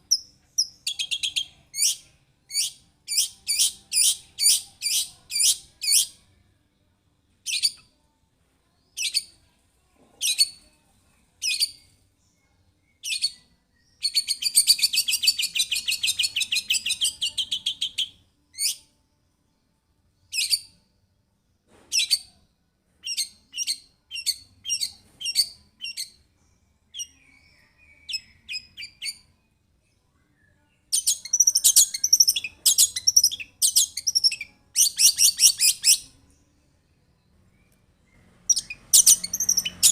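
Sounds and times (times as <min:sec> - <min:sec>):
shrike singing: 0:31.0 - 0:36.1, 0:38.5 - 0:39.9.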